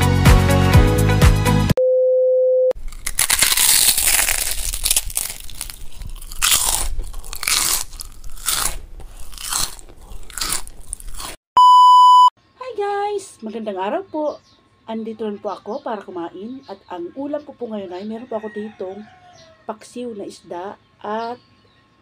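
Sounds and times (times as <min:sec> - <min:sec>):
crunching crisp food: 0:02.8 - 0:11.4
electronic beep: 0:11.6 - 0:12.3.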